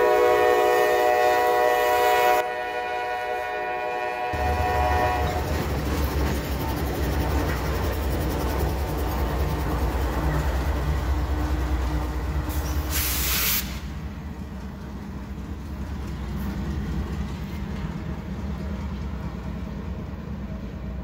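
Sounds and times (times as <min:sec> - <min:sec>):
freight train rumbling: 0:00.0 - 0:21.0
hiss burst: 0:12.4 - 0:14.0.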